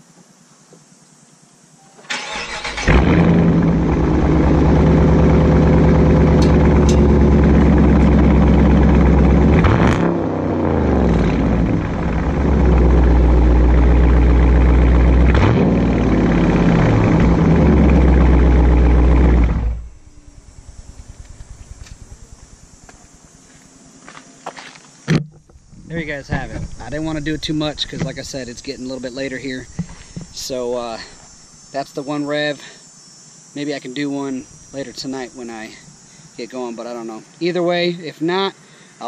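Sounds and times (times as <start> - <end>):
loud car engine revving: 2.8 - 22.7.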